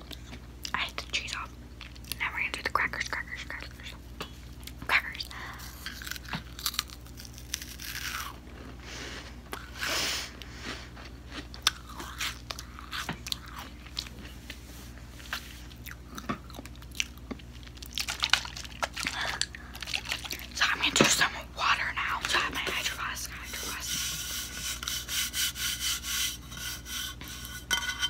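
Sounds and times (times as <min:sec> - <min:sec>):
person crunching crisp food: 0:05.5 - 0:08.8, 0:09.5 - 0:14.4, 0:15.2 - 0:20.6.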